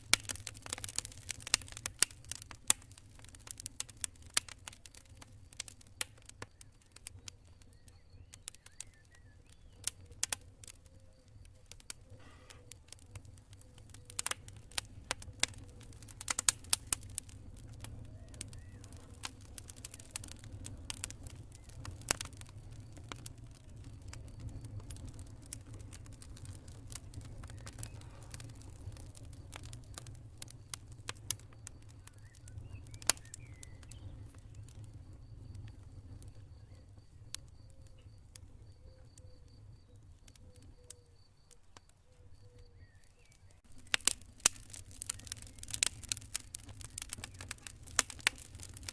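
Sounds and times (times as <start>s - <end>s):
campfire pops and snaps: 0.0s - 48.9s
fire low rumble: 0.0s - 48.9s
cricket chirping: 17.0s - 48.9s.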